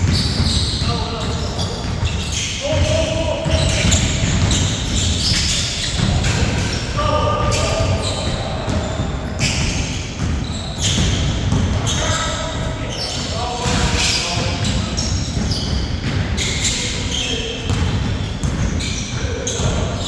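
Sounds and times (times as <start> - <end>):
basketball bouncing: 0.0 - 20.0
sneakers on court floor: 0.0 - 20.0
players shouting: 6.0 - 15.1.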